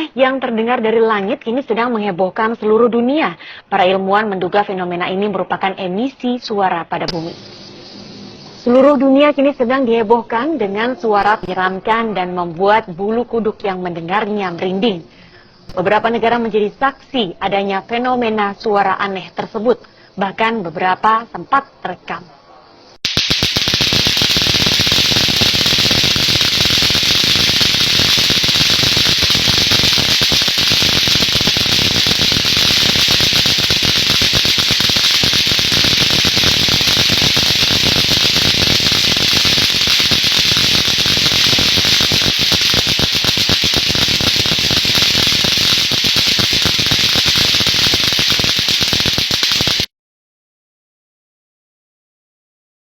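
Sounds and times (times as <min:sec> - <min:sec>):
harsh crackling static: 0:07.1 - 0:08.8, 0:22.9 - 0:49.9.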